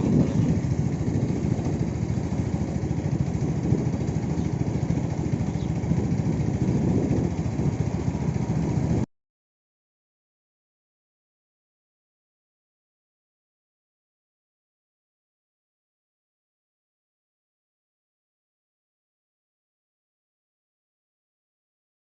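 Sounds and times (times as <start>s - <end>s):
vehicle engine low rumble: 0.0s - 9.1s.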